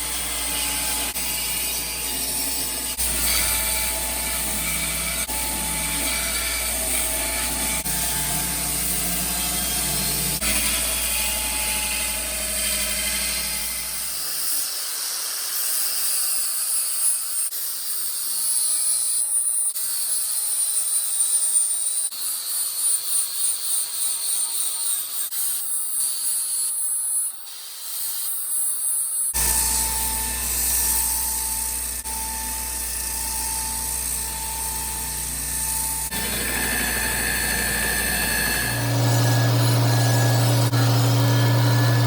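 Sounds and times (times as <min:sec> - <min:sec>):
power tool whining: 0:00.0 - 0:15.5, 0:27.3 - 0:42.0
low hum: 0:29.4 - 0:42.0.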